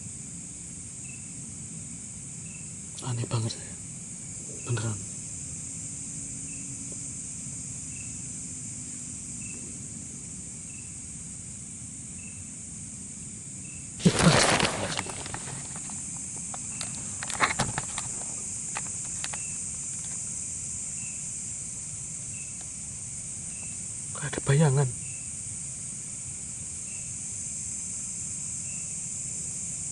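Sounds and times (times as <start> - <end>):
crickets trilling: 0.0 - 29.9
loud rustle: 14.0 - 20.2.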